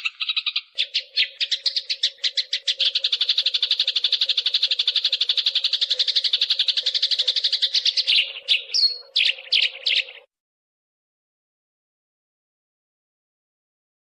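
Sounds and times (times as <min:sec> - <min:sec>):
sparrows chattering: 0:00.0 - 0:10.3.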